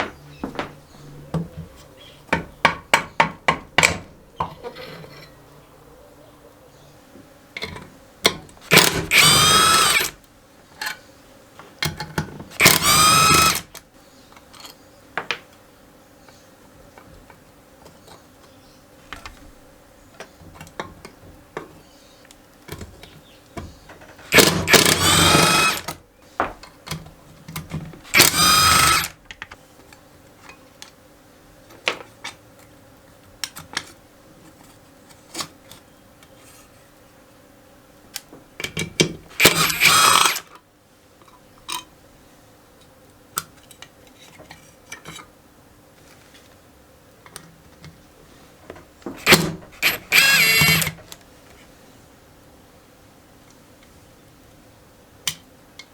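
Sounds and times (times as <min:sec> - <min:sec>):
clicks and taps of tools: 0:07.6 - 0:08.9, 0:20.2 - 0:24.8, 0:38.1 - 0:39.6, 0:55.3 - 0:55.9
power drill whining: 0:08.7 - 0:10.2, 0:12.6 - 0:13.7, 0:24.3 - 0:26.0, 0:28.1 - 0:29.2, 0:39.3 - 0:40.5, 0:49.2 - 0:51.0.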